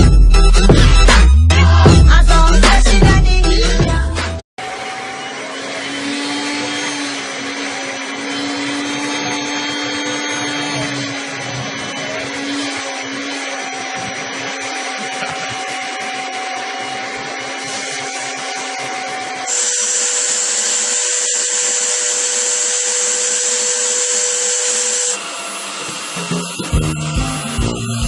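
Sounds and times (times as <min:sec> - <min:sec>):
loud hissy vacuum: 0:04.6 - 0:26.7
vacuum cleaner whine: 0:04.6 - 0:28.0.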